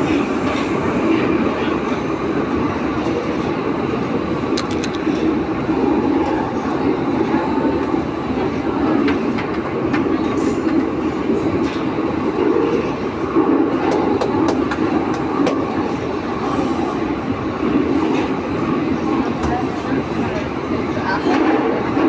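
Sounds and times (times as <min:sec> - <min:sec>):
train wheels rumbling on rail: 0:00.0 - 0:22.0
sharp clicks: 0:04.6 - 0:05.0.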